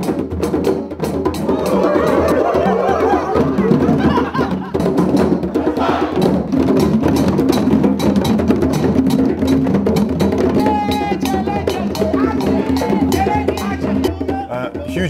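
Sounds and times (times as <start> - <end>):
hand drums playing: 0.0 - 15.0.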